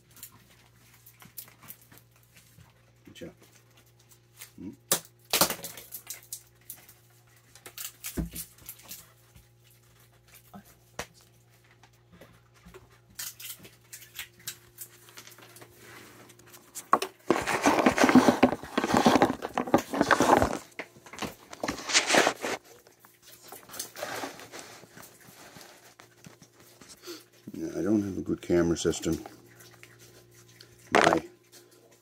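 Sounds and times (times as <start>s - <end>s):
animal eating clicks and crunches: 0.0s - 32.0s
dense rustling and crunching: 15.0s - 26.9s.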